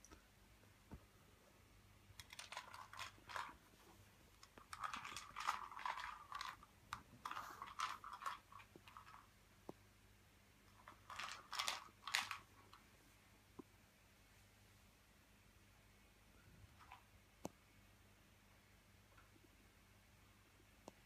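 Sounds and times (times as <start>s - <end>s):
cat crunching dry treats: 2.2s - 3.7s, 4.4s - 9.3s, 10.7s - 12.8s.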